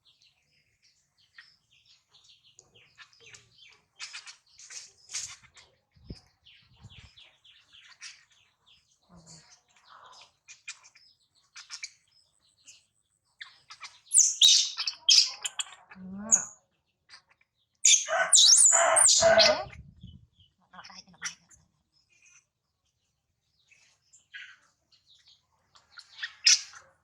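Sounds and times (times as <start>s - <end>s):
baby monkey squeaking and chirping: 14.2s - 15.7s, 17.8s - 20.2s.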